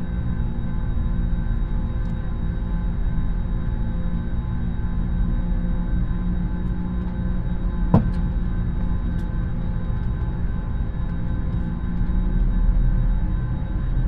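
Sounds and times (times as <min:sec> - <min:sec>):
aircraft cabin drone: 0:00.0 - 0:14.0
sharp knock: 0:08.0 - 0:08.2.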